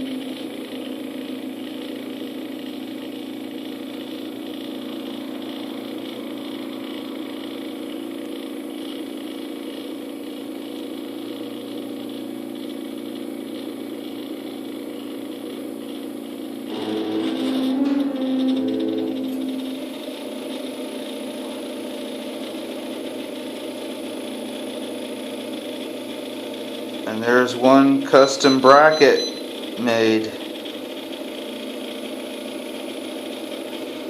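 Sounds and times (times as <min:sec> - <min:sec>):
stepper motors whining: 0:16.7 - 0:20.7, 0:27.1 - 0:30.3.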